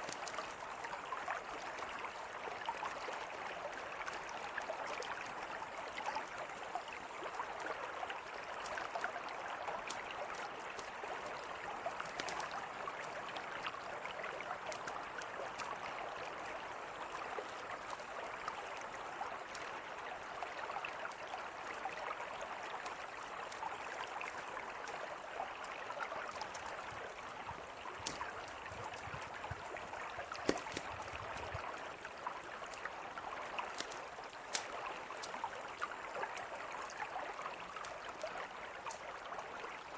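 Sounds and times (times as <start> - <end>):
campfire crackling: 0.0 - 1.0, 26.3 - 27.0, 27.7 - 31.7, 32.8 - 35.9
river flowing: 0.0 - 39.9.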